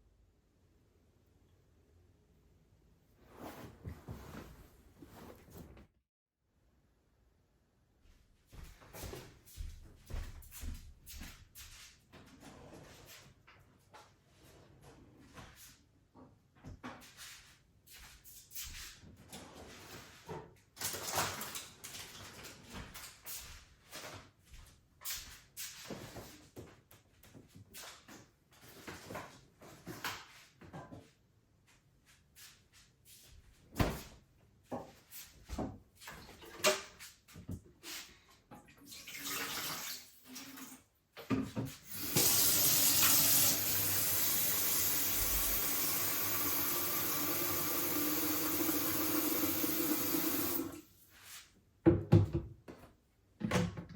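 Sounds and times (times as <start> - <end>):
tap water running into sink: 38.9 - 40.8, 41.9 - 50.8.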